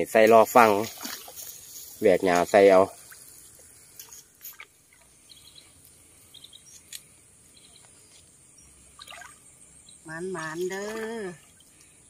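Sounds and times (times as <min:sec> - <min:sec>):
splashes in shallow water: 0:00.4 - 0:05.2, 0:08.9 - 0:09.5, 0:10.4 - 0:11.8
rustles in dry grass: 0:00.5 - 0:07.2.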